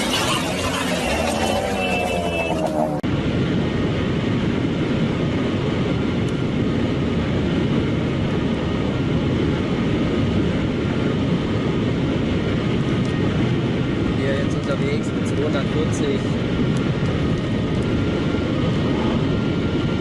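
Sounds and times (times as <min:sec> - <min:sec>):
voices: 0:00.0 - 0:03.0
car driving fast on motorway: 0:00.0 - 0:20.0.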